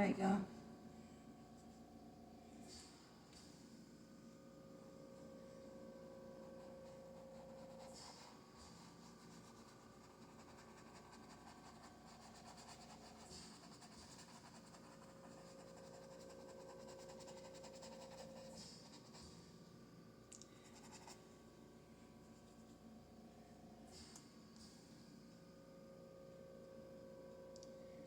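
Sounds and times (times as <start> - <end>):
low steady hum: 0.0 - 28.0
paintbrush scratching on canvas: 6.5 - 19.4.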